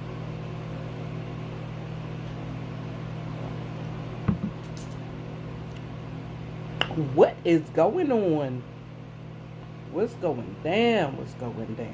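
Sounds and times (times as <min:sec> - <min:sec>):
steady low hum: 0:00.0 - 0:11.9
quick knocks: 0:04.3 - 0:04.6.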